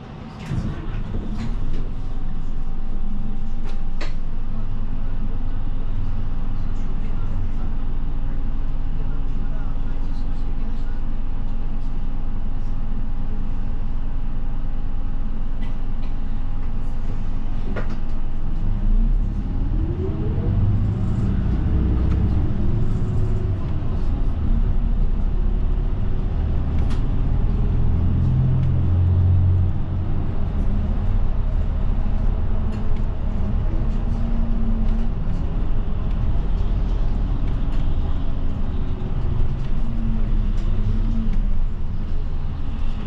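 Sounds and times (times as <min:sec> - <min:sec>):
bus engine idling and revving: 0:00.0 - 0:43.0.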